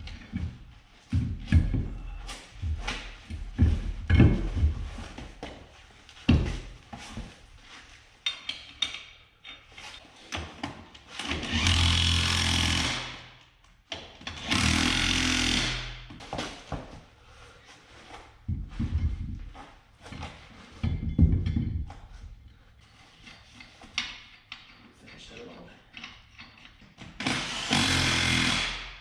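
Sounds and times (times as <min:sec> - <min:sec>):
metal clanks and knocks: 0:00.0 - 0:05.6, 0:08.2 - 0:10.9, 0:18.4 - 0:27.3
impact wrench running: 0:11.2 - 0:13.3, 0:14.4 - 0:16.0, 0:27.2 - 0:29.0.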